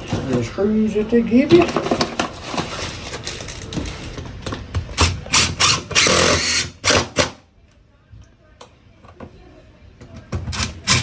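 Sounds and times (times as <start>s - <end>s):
power drill driving screws: 5.0s - 7.4s, 10.6s - 11.0s.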